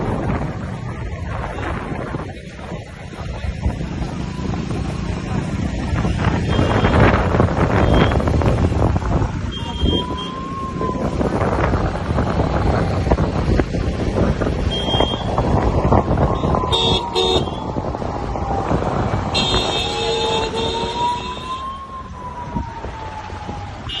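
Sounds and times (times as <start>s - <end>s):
traffic engines running: 0.0s - 24.0s
car horn beeps: 6.4s - 7.0s, 7.8s - 8.2s, 9.5s - 10.3s, 14.7s - 15.3s, 19.4s - 21.0s
siren wailing: 9.0s - 12.6s, 14.7s - 24.0s.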